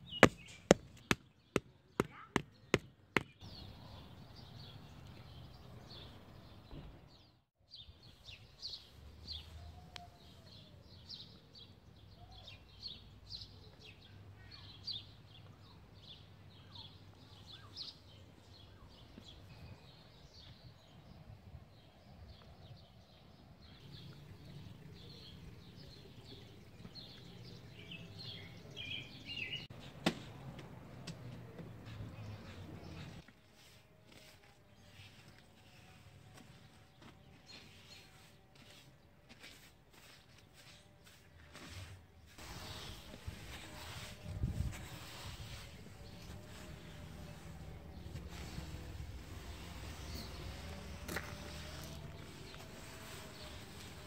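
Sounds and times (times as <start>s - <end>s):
birds chirping and singing: 23.6s - 29.7s.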